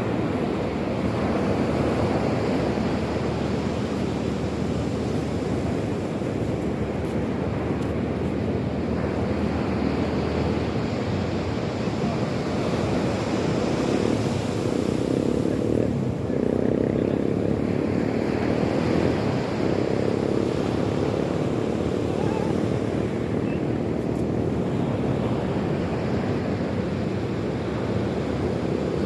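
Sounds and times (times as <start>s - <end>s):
sea waves washing in: 0.0s - 29.0s
wind on the microphone: 0.0s - 29.0s.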